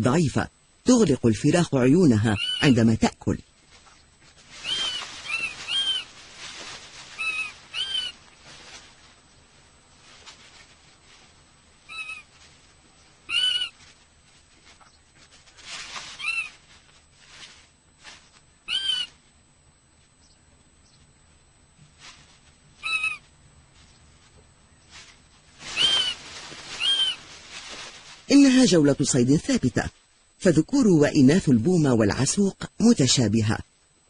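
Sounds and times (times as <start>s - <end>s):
owl mewing calls: 2.2s - 2.8s, 4.6s - 6.2s, 7.1s - 8.4s, 11.8s - 12.4s, 13.2s - 14.0s, 16.1s - 16.7s, 18.6s - 19.3s, 22.8s - 23.4s, 25.6s - 27.4s
soft rustling: 3.4s - 28.8s.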